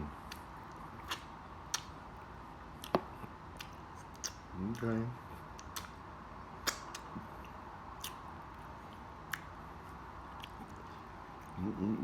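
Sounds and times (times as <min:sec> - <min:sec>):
steady low hiss: 0:00.0 - 0:12.0
wet mouth clicks and smacks: 0:00.3 - 0:02.0, 0:02.8 - 0:04.9, 0:05.5 - 0:06.0, 0:06.6 - 0:09.5.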